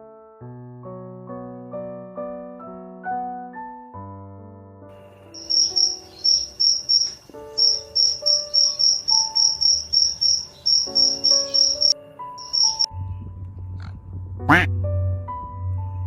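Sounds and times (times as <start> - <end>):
soft piano music: 0.0 - 16.0
cricket chirping: 5.0 - 12.9.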